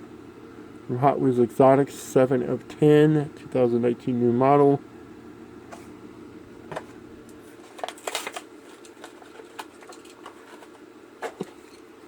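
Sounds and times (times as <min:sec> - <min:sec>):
plastic blister pack crinkling: 0:07.6 - 0:10.8.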